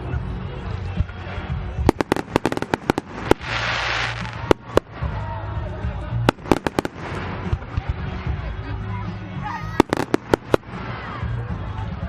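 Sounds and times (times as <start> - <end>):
fireworks hissing burst: 1.9 - 5.2, 6.3 - 7.6, 9.8 - 11.0
fireworks bangs: 1.9 - 5.4, 6.3 - 7.9, 9.8 - 11.0
fireworks cracking and popping: 1.9 - 5.4, 6.2 - 7.9, 9.8 - 11.1.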